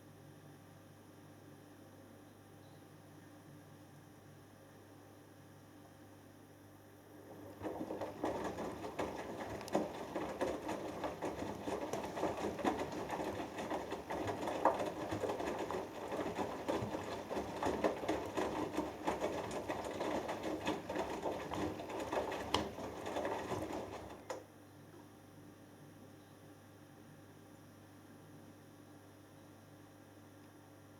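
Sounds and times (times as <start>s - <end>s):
motor hum: 7.0s - 24.4s
washing machine drum churning: 7.1s - 24.5s.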